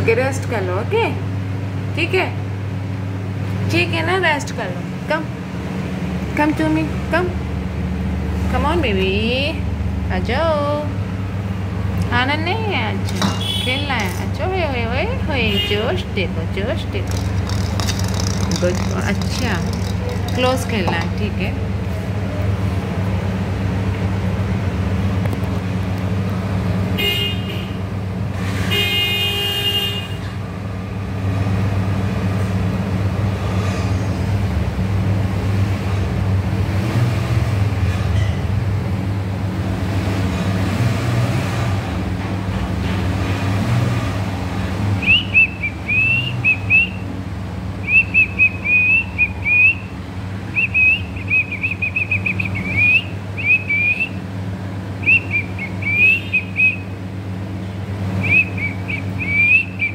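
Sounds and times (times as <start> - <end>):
vehicle horn toots: 13.3 - 14.0, 15.4 - 16.0, 27.0 - 27.8, 28.6 - 30.3
parrot chirping whistles: 45.0 - 47.0, 47.8 - 49.9, 50.6 - 54.2, 55.0 - 56.8, 58.2 - 59.9.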